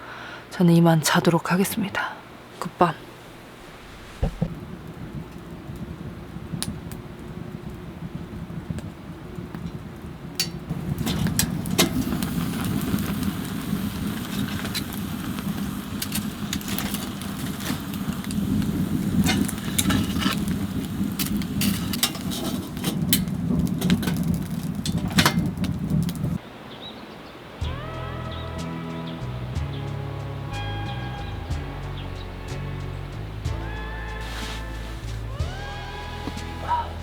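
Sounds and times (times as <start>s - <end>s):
low rush of stove fire: 2.3s - 37.0s
wood fire crackling and popping: 3.0s - 26.4s.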